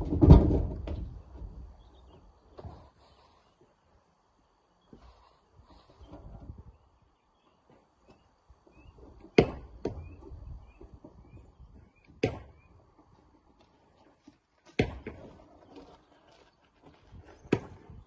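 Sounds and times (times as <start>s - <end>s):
rocks knocking and clattering: 0.0s - 1.6s.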